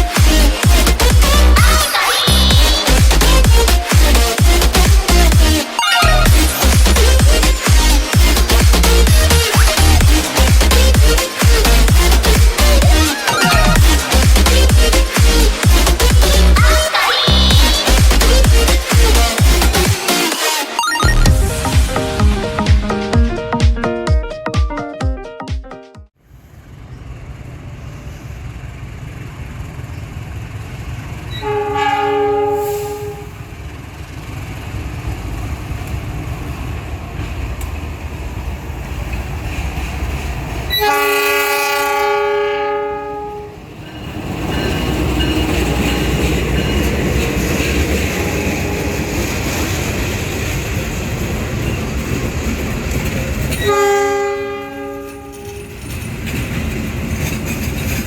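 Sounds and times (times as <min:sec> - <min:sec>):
engine and wheels rumbling: 0:00.0 - 0:20.1, 0:26.3 - 0:40.9, 0:42.8 - 0:58.0
locomotive horn blasts: 0:31.4 - 0:33.4, 0:40.7 - 0:43.6, 0:48.0 - 0:49.3, 0:53.5 - 0:55.7.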